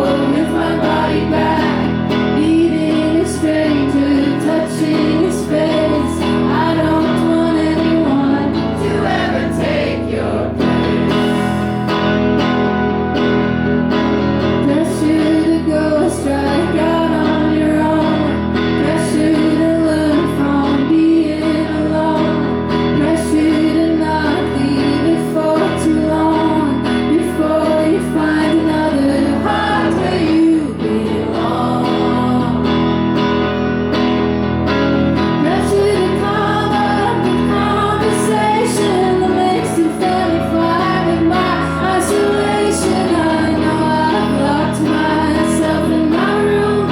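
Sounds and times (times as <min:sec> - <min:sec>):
woman singing: 0:00.0 - 0:12.1, 0:14.6 - 0:33.3, 0:35.2 - 0:46.9
guitar strumming: 0:00.0 - 0:46.9.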